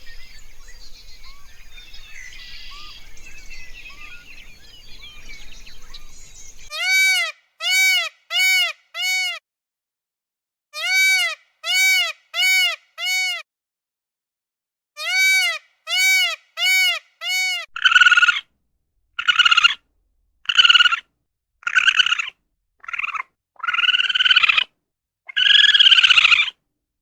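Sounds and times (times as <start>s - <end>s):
pitched animal calls: 15.0s - 18.4s, 19.2s - 19.8s, 20.5s - 21.0s, 21.6s - 24.7s, 25.3s - 26.6s
raspy animal calls: 15.0s - 18.4s, 19.2s - 19.8s, 20.4s - 21.0s, 21.6s - 24.7s, 25.3s - 26.6s.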